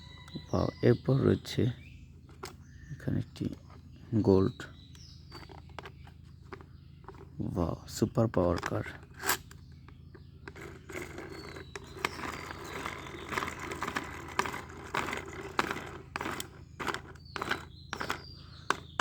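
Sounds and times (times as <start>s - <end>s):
plastic toy car scraping: 5.3s - 7.5s, 8.5s - 9.6s, 10.4s - 19.0s.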